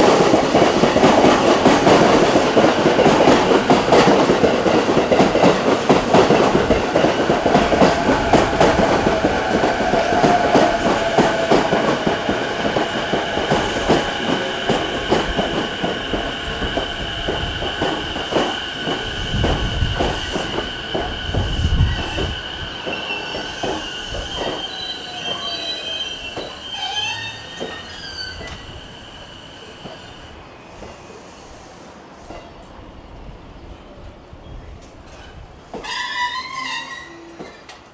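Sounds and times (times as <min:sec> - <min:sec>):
train wheels squealing: 0:20.2 - 0:32.6, 0:35.1 - 0:37.8.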